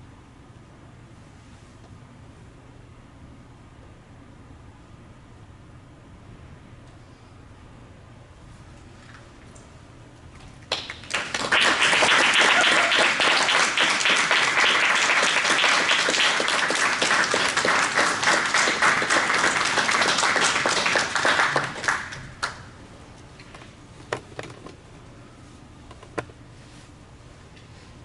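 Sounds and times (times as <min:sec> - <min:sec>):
audience applauding: 0:10.7 - 0:22.6.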